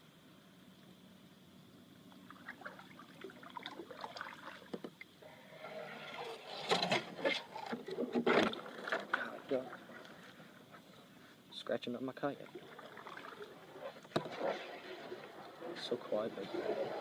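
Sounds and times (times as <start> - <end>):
paddle splashing in water: 12.5 - 17.0.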